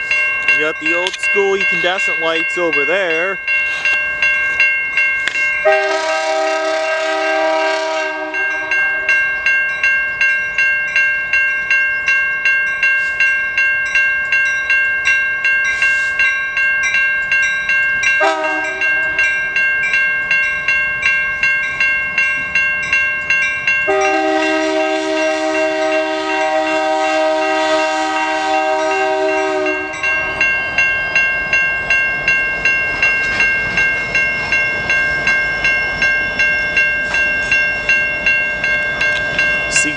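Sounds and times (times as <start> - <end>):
crossing bell ringing: 0.0 - 39.9
locomotive horn chord: 5.6 - 9.1, 18.2 - 19.2, 23.9 - 30.1.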